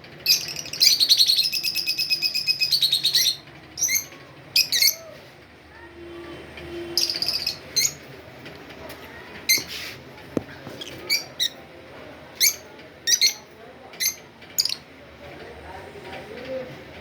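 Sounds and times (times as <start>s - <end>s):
budgerigars chirping: 0.3s - 4.0s.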